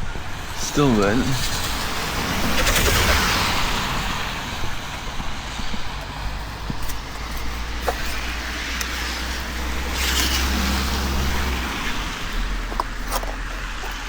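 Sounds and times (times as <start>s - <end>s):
low engine rumble: 0.0s - 14.0s
tyre hiss of passing vehicle: 0.6s - 12.6s.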